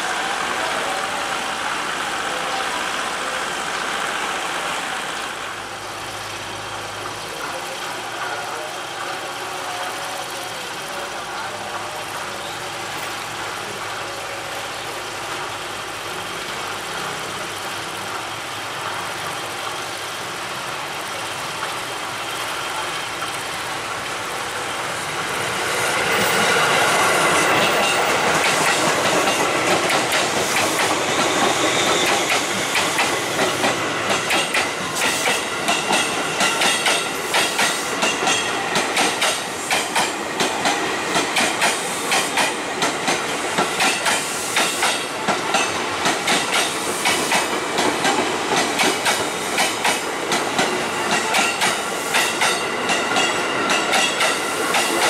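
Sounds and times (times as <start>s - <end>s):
electric train passing: 0.0s - 55.0s
wheels clacking over rail joints: 25.0s - 55.0s.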